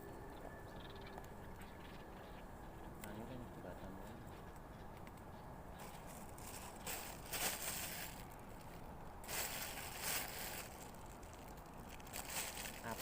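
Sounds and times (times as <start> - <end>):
rustling and crunching: 5.8 - 13.0.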